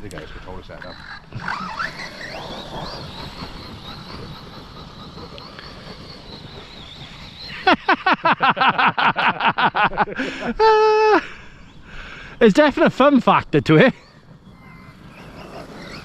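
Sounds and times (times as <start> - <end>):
rapid short pitched pulses: 0.3 - 8.6
toy truck electric motor whining: 0.9 - 8.1, 14.0 - 16.0.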